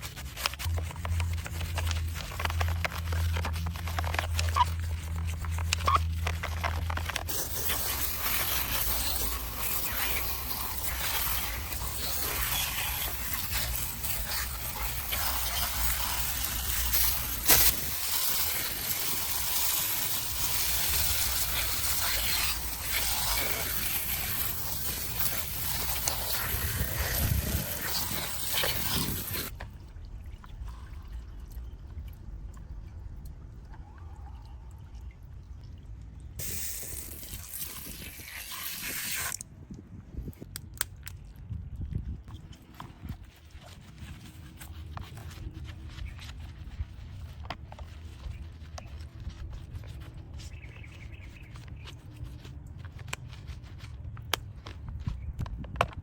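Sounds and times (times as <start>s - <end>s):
water spraying and trickling: 0.0s - 33.2s, 35.6s - 39.4s.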